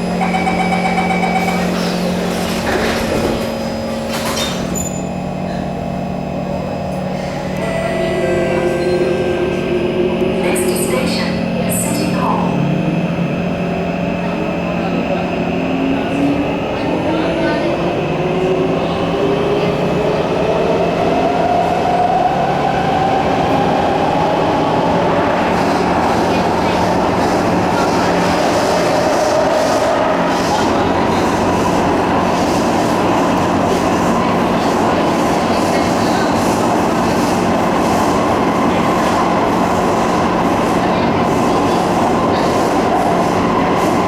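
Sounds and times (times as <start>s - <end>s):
electrical hum of train: 0.0s - 44.0s
faint voices: 5.4s - 44.0s.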